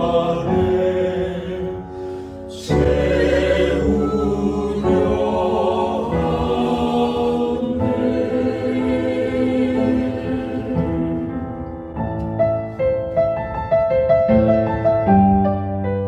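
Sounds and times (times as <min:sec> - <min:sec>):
vocal ensemble singing in harmony: 0:00.0 - 0:11.6
piano notes: 0:00.0 - 0:16.0.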